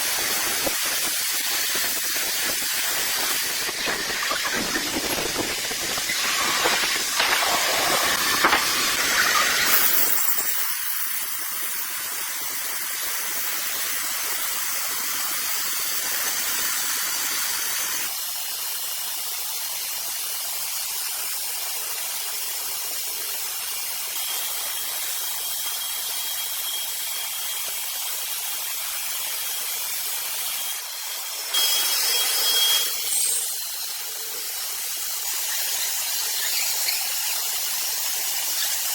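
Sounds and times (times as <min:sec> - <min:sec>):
sawmill saw cutting log: 0:00.0 - 0:12.6, 0:24.1 - 0:38.9.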